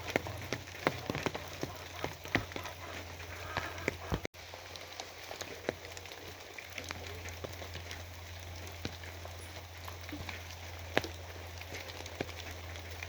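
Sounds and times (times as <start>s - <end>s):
rain falling: 0.0s - 13.0s
raindrops ticking: 0.0s - 13.0s.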